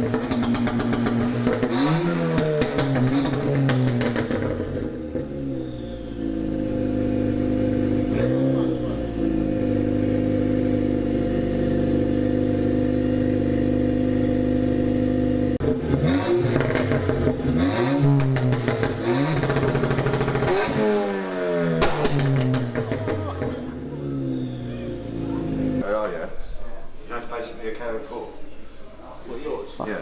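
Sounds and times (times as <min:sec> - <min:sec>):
exhaust crackles and pops: 0:00.0 - 0:05.4, 0:15.6 - 0:20.8, 0:21.8 - 0:23.8
race car engine revving: 0:00.0 - 0:25.8
loud exhaust bangs: 0:15.6 - 0:27.0.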